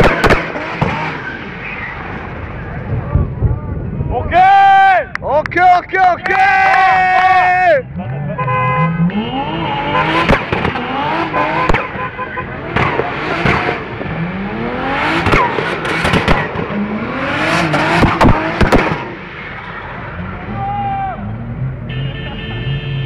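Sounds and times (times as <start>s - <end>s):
car engine revving: 0.0s - 4.1s, 7.8s - 21.9s.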